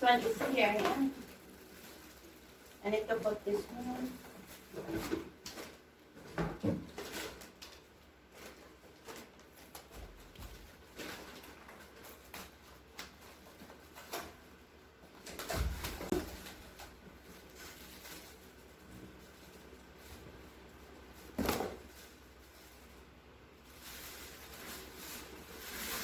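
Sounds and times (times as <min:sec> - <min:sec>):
household items knocking and clattering: 0:04.6 - 0:07.6.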